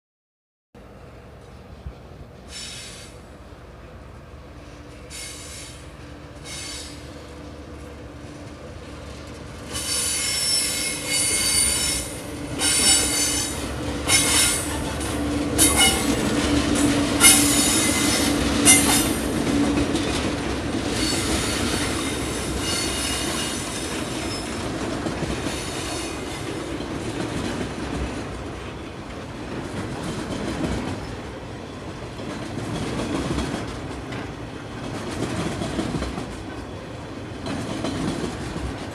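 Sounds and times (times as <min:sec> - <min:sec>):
diesel locomotive engine drone: 0:00.8 - 0:38.9
train wheels squealing: 0:02.5 - 0:03.2, 0:04.9 - 0:07.2, 0:09.7 - 0:16.2, 0:17.2 - 0:19.2, 0:20.9 - 0:24.7, 0:25.4 - 0:26.5
wheels clicking over rail joints: 0:08.4 - 0:38.9.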